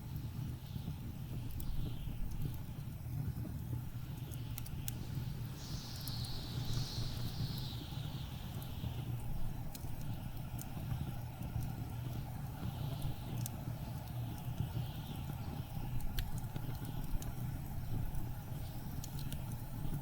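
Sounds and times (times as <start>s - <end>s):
wind gust hiss: 0.0s - 20.0s
wood fire crackling and popping: 0.0s - 20.0s
blizzard wind rumbling: 1.8s - 20.0s.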